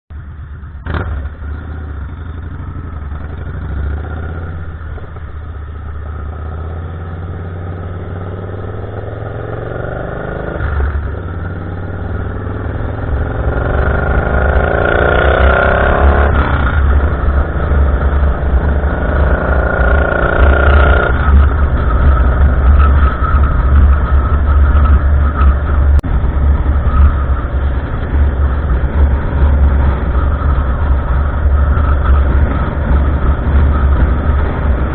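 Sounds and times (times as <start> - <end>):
vehicle engine accelerating: 0.6 - 34.9.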